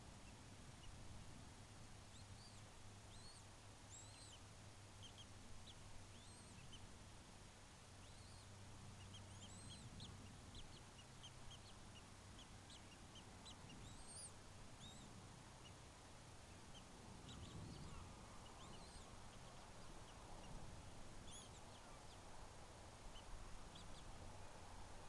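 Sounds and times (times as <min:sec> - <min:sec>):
low steady hum: 0:00.0 - 0:25.0
high-pitched bird chirps: 0:09.1 - 0:09.9, 0:13.7 - 0:15.1, 0:17.3 - 0:19.1.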